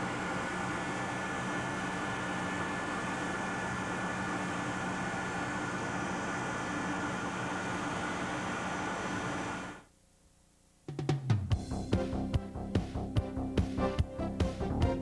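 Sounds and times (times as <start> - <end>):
mechanical hum: 0.0 - 11.5.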